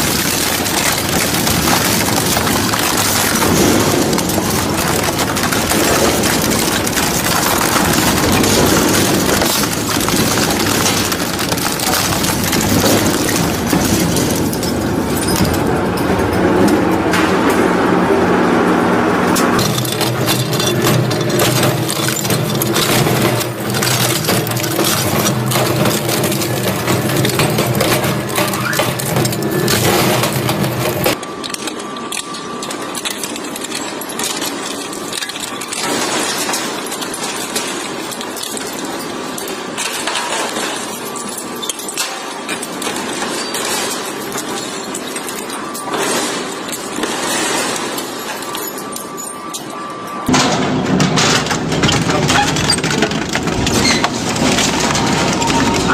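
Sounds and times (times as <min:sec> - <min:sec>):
material rattling and clinking: 0:00.0 - 0:16.6
crushing machine motor drone: 0:00.0 - 0:55.9.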